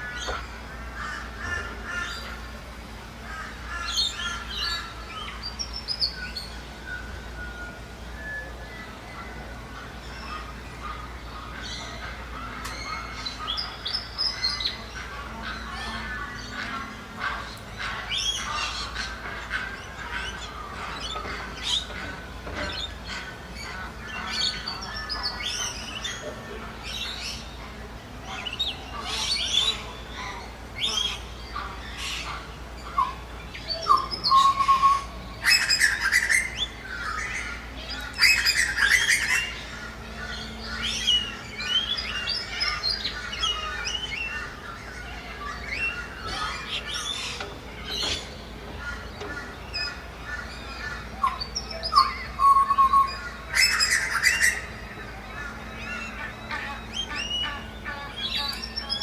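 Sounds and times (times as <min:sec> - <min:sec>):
ducks squawking: 0:00.0 - 0:02.6, 0:09.2 - 0:59.0
birds chirping: 0:00.0 - 0:59.0.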